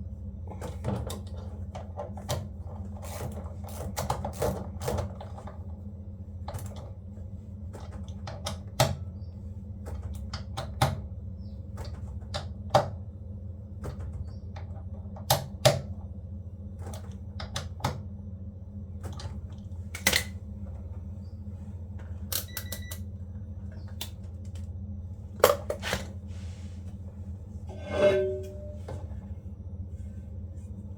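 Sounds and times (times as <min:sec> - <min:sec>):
steady low hum: 0:18.1 - 0:30.9.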